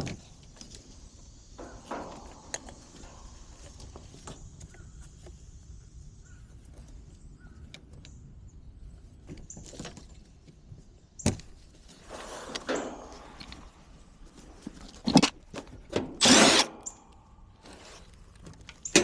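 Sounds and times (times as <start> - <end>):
rattling: 1.6 - 4.4, 11.9 - 19.0.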